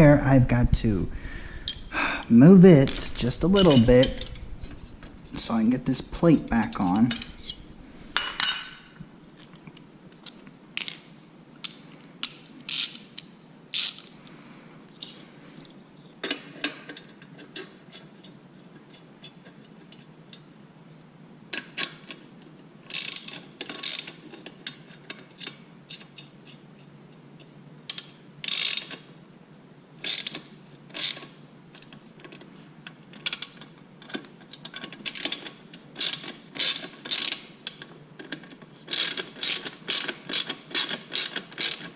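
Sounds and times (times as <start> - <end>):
ratchet wrench clicking: 22.9 - 24.1, 27.9 - 29.0, 36.0 - 37.4, 38.9 - 41.9.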